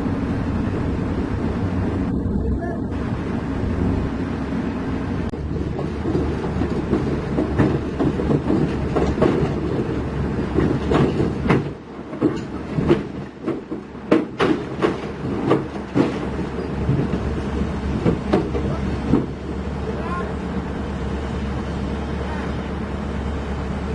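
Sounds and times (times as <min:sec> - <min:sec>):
diesel machinery rumbling: 0:00.0 - 0:23.9
steel clanks and rattles: 0:05.2 - 0:19.8.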